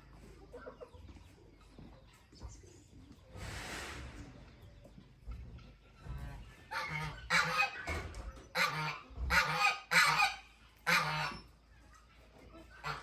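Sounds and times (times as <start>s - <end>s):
poultry calling: 5.6s - 11.7s, 12.6s - 13.0s.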